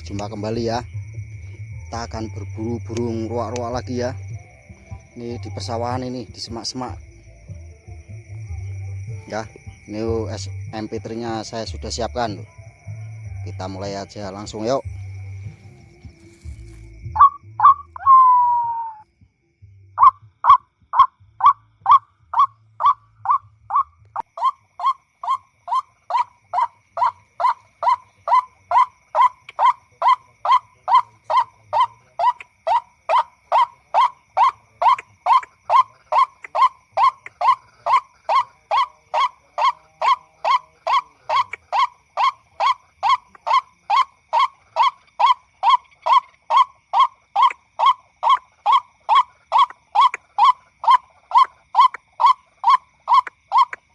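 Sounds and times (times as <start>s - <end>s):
waterhen call through speaker: 20.0s - 53.8s.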